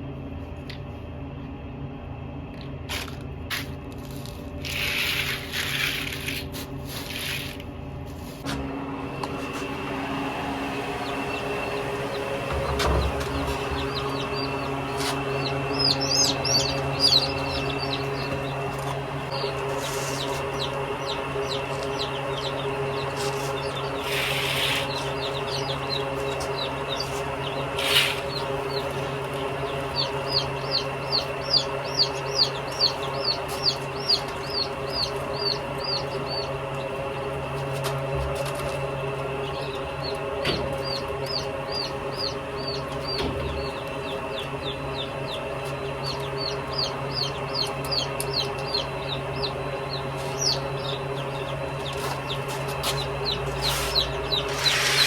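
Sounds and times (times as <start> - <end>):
steady low hum: 0.0 - 55.0
chickens chirping: 9.3 - 55.0.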